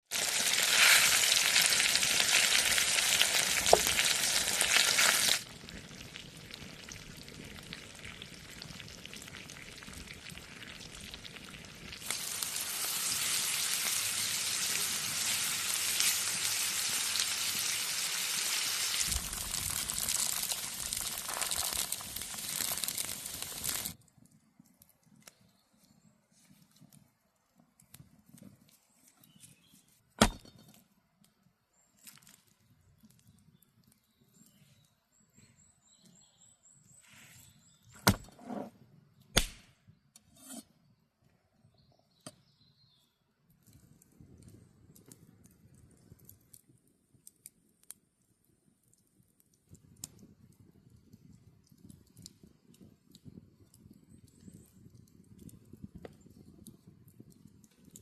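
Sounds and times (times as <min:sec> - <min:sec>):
food sizzling in a pan: 0:00.1 - 0:24.0.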